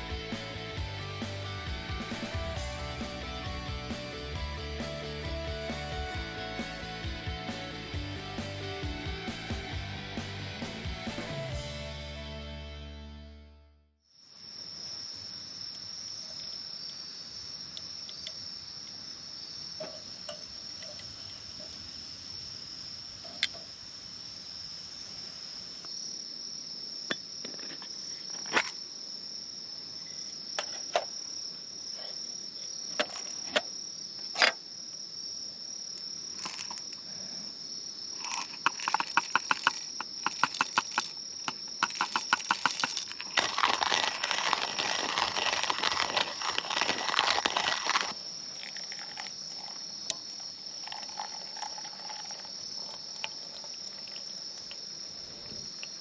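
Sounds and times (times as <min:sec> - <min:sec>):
insect high trill: 0:36.4 - 0:56.0
rapid clicking: 0:38.3 - 0:43.2
sharp clicks: 0:38.4 - 0:43.2.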